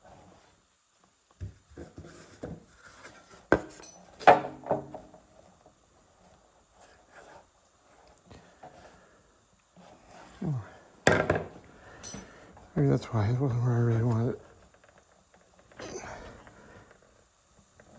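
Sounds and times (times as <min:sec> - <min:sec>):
tools knocking and clinking: 0:11.1 - 0:12.3.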